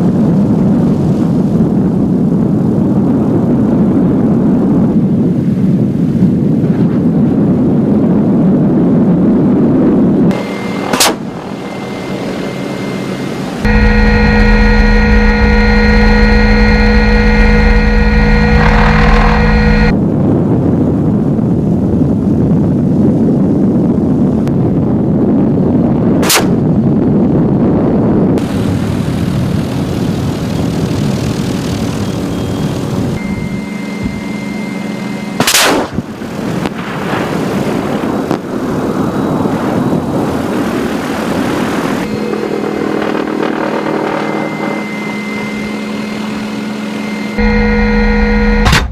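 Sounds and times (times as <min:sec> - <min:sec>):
helicopter turbine whine: 0:10.2 - 0:20.0, 0:28.4 - 0:36.6, 0:38.5 - 0:48.9
sharp gunfire-like bangs: 0:26.2 - 0:26.6, 0:35.4 - 0:36.1, 0:48.6 - 0:48.9.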